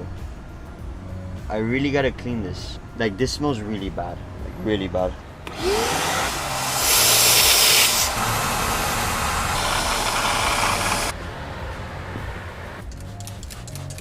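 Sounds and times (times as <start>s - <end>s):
hissing spray jet: 5.6s - 11.1s.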